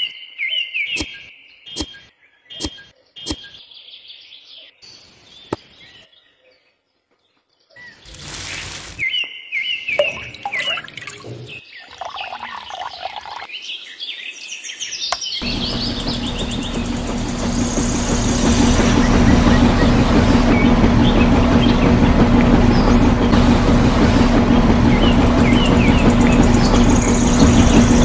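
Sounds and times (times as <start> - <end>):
motor hum with pulsing rhythm: 8.1 - 9.0, 15.4 - 28.0
birds chirping: 9.8 - 13.5, 15.1 - 28.0.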